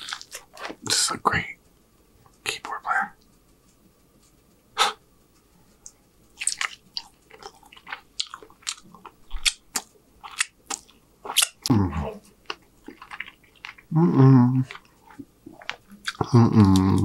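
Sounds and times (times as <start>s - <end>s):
biting food: 0.0s - 0.8s, 6.4s - 13.9s
wet chewing clicks and smacks: 0.0s - 0.8s, 5.8s - 11.7s, 12.4s - 13.9s, 14.6s - 17.0s.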